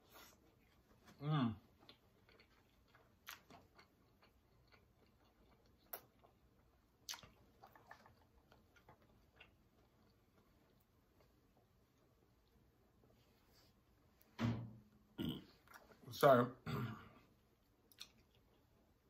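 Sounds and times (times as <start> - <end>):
closed-mouth chewing: 0.0 - 11.2, 17.8 - 18.8
wet mouth clicks and smacks: 7.0 - 8.3, 17.9 - 18.5.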